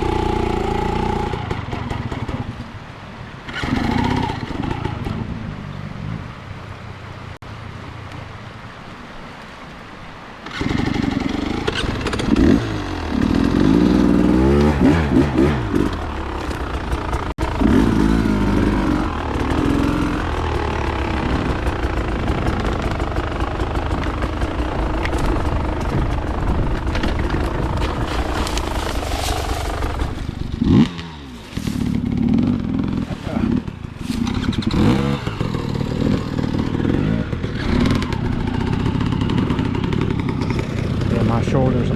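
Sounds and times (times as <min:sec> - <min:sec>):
dirt bike engine revving: 0:00.0 - 0:02.4, 0:03.5 - 0:05.3, 0:10.4 - 0:41.9.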